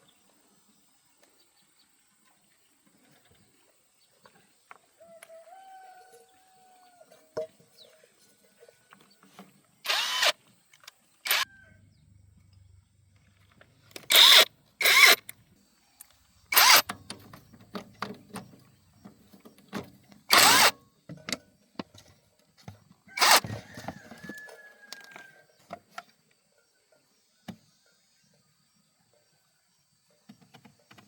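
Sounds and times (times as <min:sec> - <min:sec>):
power tool bursts: 0:09.8 - 0:10.4, 0:11.2 - 0:11.4, 0:14.0 - 0:15.3, 0:16.5 - 0:17.0, 0:20.3 - 0:20.8, 0:23.2 - 0:23.6.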